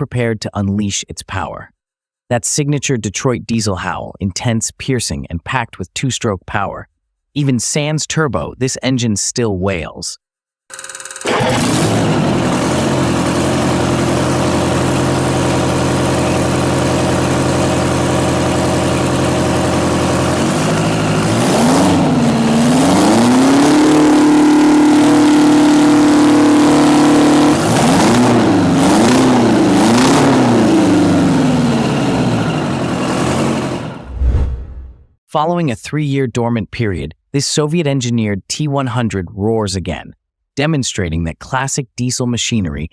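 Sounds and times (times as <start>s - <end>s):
diesel engine revving: 11.3s - 34.9s.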